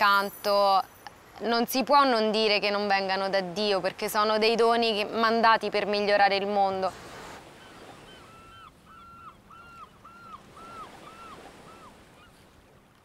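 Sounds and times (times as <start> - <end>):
water washing at shore: 2.6 - 13.0
bird calling: 7.4 - 12.7.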